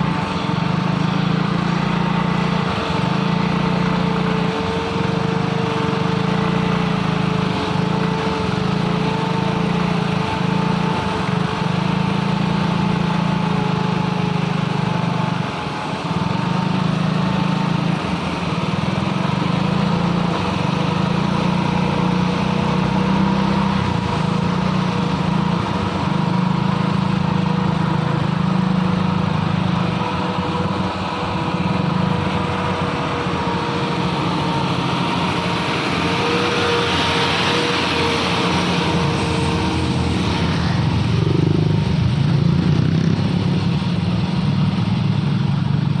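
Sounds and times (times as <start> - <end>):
diesel truck engine labouring: 0.0 - 46.0
high whine: 27.3 - 46.0.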